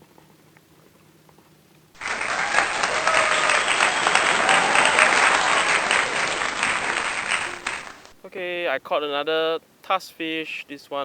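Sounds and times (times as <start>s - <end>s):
crowd applause: 2.0s - 8.2s.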